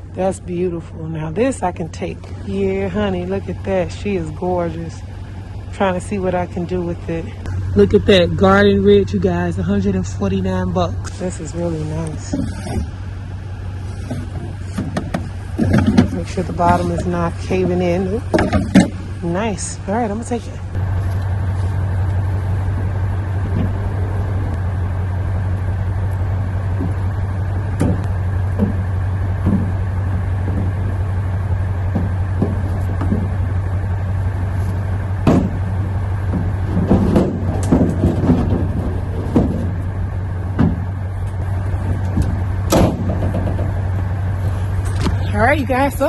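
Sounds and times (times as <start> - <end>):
low machine hum: 0.0 - 46.0
objects clattering in dumpster: 11.1 - 46.0.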